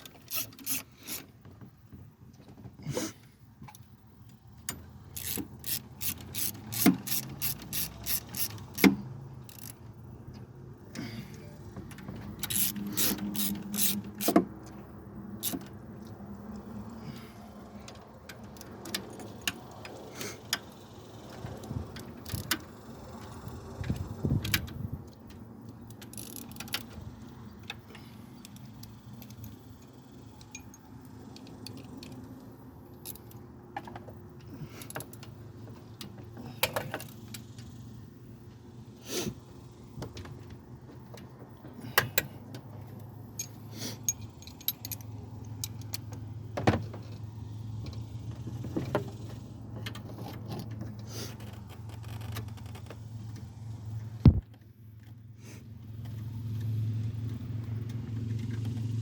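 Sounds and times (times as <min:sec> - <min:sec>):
metal tools clinking: 0:30.4 - 0:30.9, 0:43.3 - 0:46.1.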